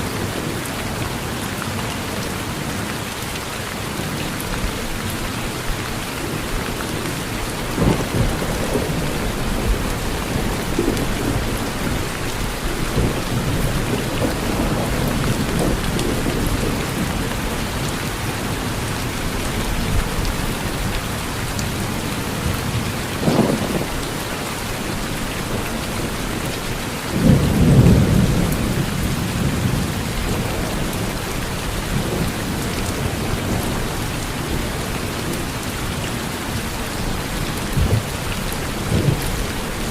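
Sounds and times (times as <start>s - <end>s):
heavy rain falling: 0.0s - 39.9s
thunder rolling: 23.2s - 23.9s.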